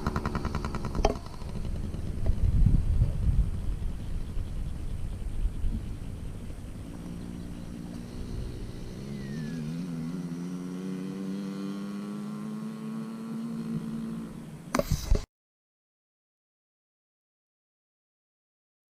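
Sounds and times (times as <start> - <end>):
small two-stroke engine running: 0.0 - 15.2.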